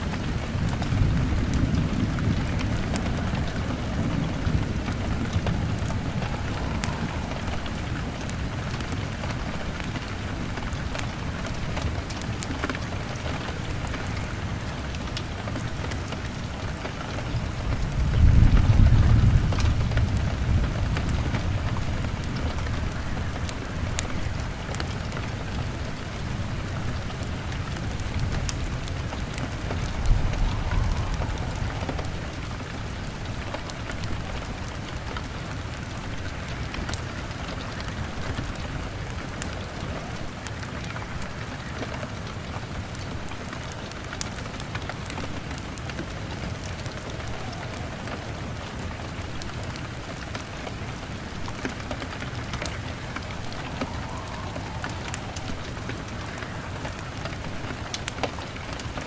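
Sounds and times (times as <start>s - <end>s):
rain on a window: 0.0s - 59.0s
thunder rumbling: 0.0s - 59.0s
wood fire crackling: 0.0s - 59.0s.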